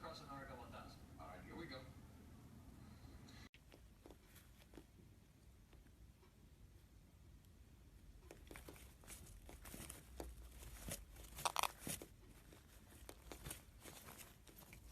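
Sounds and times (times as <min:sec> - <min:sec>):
crinkling and tearing: 0:08.2 - 0:14.9.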